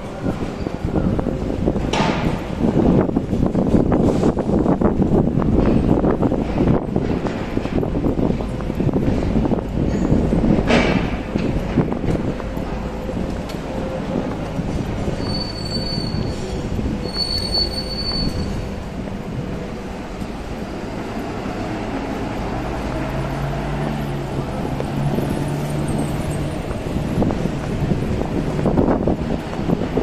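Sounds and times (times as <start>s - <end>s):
train rumble: 0.0s - 30.0s
high-pitched train wheel squeals: 13.5s - 18.9s.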